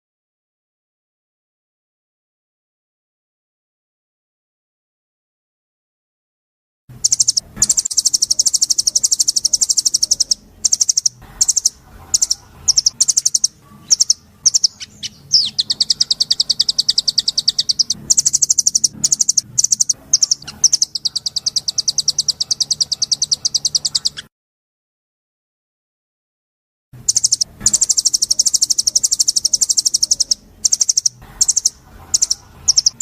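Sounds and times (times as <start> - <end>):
songbird singing fast trills: 7.0 - 24.3, 27.0 - 33.0.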